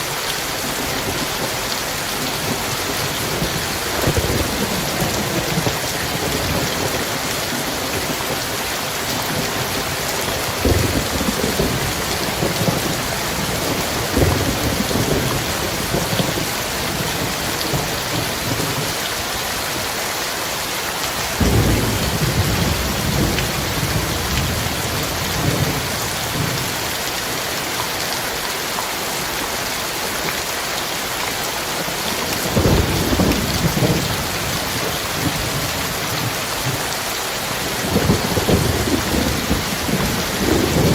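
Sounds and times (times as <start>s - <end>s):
heavy rain pouring: 0.0s - 40.9s
thunder rumbling: 0.7s - 19.0s, 21.4s - 27.0s, 32.4s - 40.9s.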